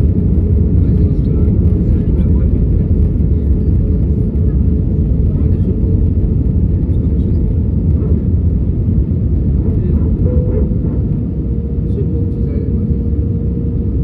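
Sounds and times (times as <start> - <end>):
airplane low rumble: 0.0 - 14.0.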